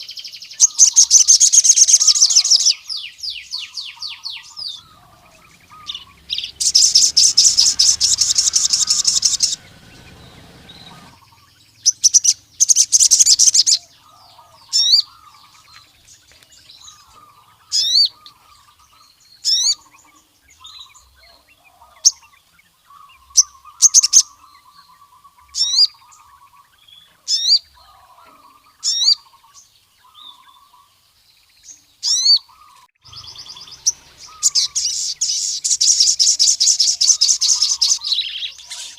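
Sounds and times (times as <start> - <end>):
soft low bird twittering: 0.0 - 38.9
bird high-pitched rattling trills: 0.6 - 2.8, 3.7 - 18.8, 33.0 - 38.9
bird sharp rising whistled notes: 3.7 - 12.0.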